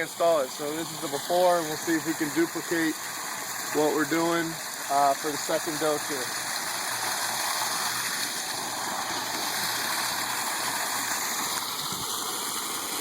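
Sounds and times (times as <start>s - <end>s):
waterfall splashing: 0.0s - 13.0s.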